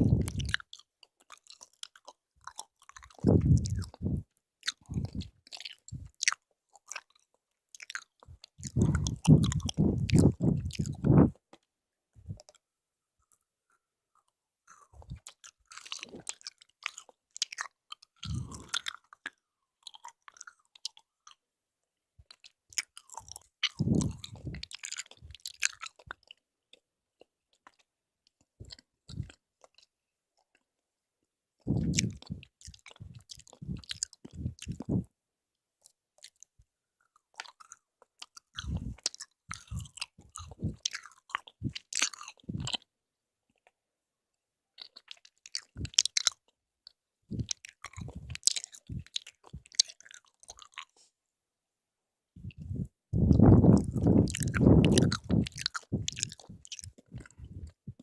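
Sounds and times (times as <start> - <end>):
mouth clicks: 0.0 - 0.7, 1.6 - 7.1, 7.8 - 11.4, 14.7 - 21.0, 22.4 - 26.2, 31.7 - 35.1, 47.3 - 50.9, 52.4 - 58.0
chewing jelly candy: 0.0 - 21.5, 22.2 - 30.8, 31.6 - 35.2, 35.8 - 43.8, 44.7 - 51.2, 52.4 - 58.0.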